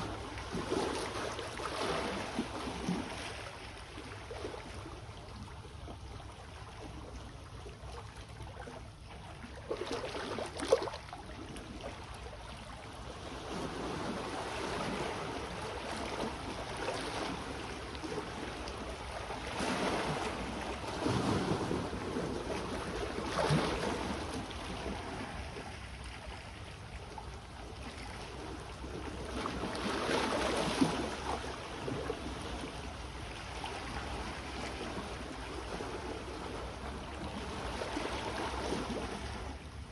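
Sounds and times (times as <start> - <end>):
sea waves washing on shore: 0.0 - 5.6, 9.2 - 39.9
water splashes: 0.0 - 39.9
wind rumble on microphone: 11.1 - 39.9.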